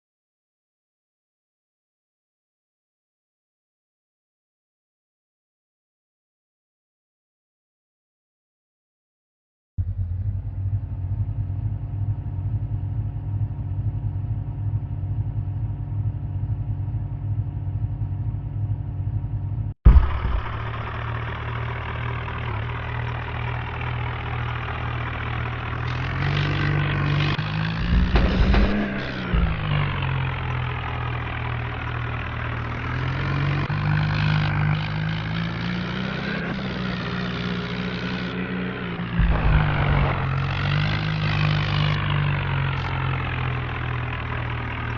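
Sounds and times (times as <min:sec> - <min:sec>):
vehicle engine running: 0:09.8 - 0:44.9
heavy knocks: 0:27.6 - 0:30.6.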